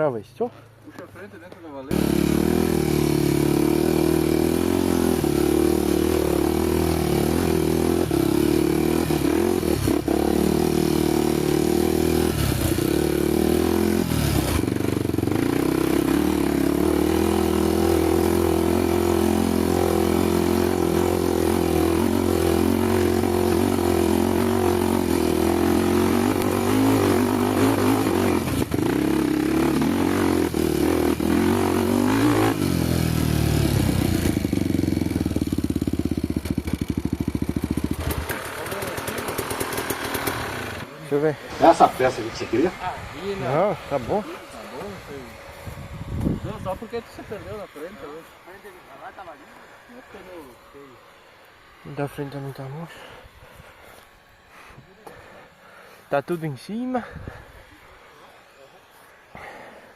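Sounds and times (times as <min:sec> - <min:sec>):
motorcycle engine running: 0:01.7 - 0:59.9
rattling on rough ground: 0:33.6 - 0:40.9.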